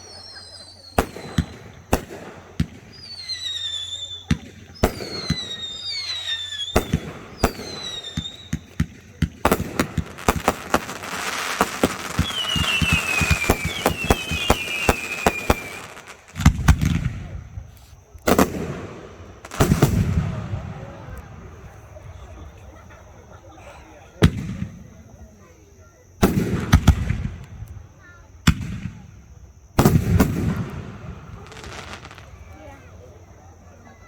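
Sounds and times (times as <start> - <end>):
falling firework whistles: 0.0 - 22.9, 26.2 - 34.0
firework pops and crackle: 1.0 - 21.3, 26.2 - 29.2, 29.8 - 32.6.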